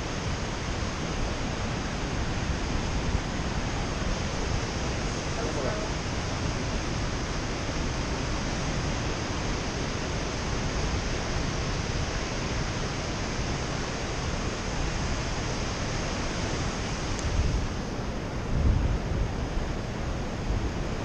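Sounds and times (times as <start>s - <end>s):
waterfall roaring: 0.0s - 21.0s
wind buffeting microphone: 14.4s - 21.0s.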